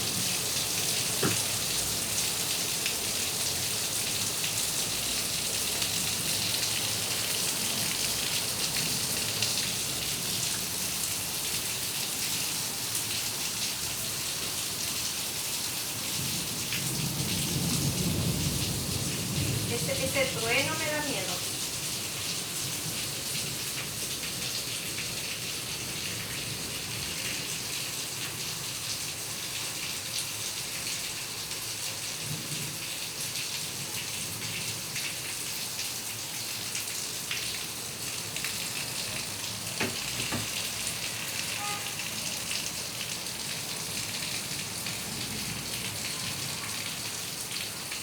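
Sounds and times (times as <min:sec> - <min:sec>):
heavy rain hissing: 0:00.0 - 0:35.0, 0:36.0 - 0:48.0
sharp tap: 0:01.2 - 0:01.4.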